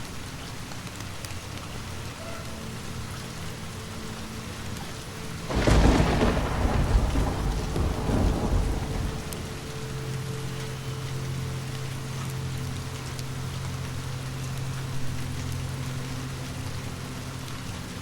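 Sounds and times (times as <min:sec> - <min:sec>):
steady rain: 0:00.0 - 0:18.0
thunder clap rumbling: 0:05.5 - 0:10.5.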